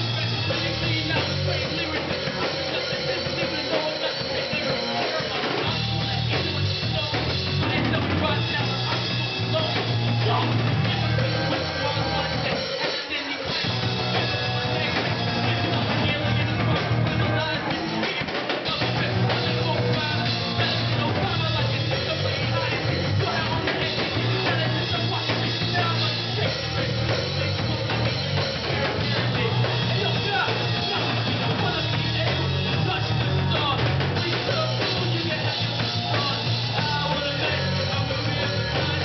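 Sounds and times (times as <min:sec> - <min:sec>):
bass line: 0:00.0 - 0:39.0
live rock band playing: 0:00.0 - 0:39.0.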